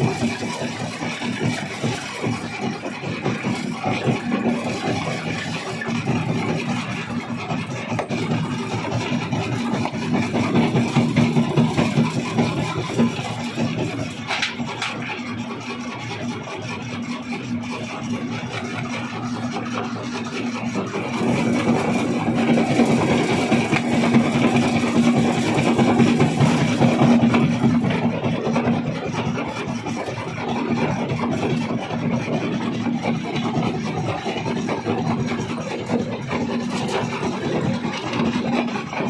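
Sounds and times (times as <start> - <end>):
rock crusher machine running: 0.0 - 39.0.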